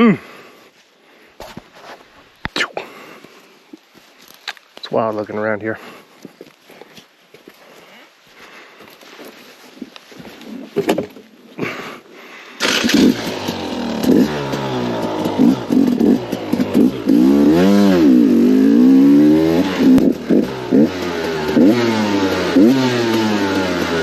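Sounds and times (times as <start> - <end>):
dirt bike engine revving: 12.6 - 24.0.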